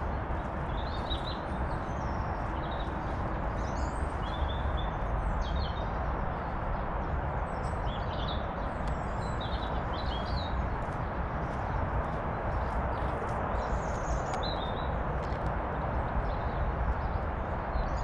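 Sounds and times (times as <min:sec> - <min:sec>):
small birds chirping: 0:00.0 - 0:06.0, 0:07.6 - 0:15.5.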